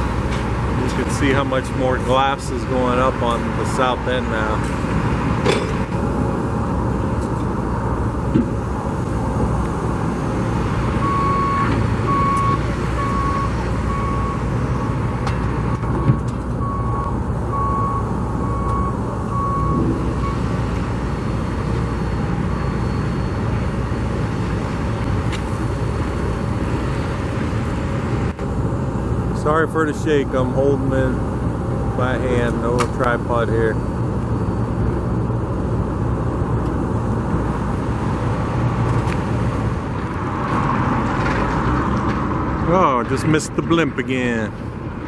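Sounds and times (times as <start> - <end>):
low rumble of vehicles: 0.0 - 45.0
reversing alarm beeping: 11.0 - 15.0, 16.0 - 20.6, 21.2 - 24.2.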